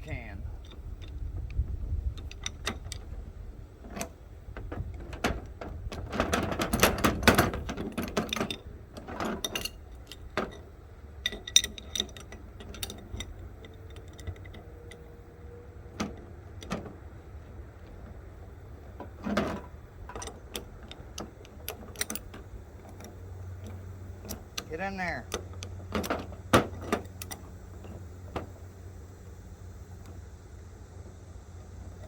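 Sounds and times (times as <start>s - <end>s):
steady low rumble: 0.0s - 32.0s
metal tools clinking: 6.1s - 15.1s.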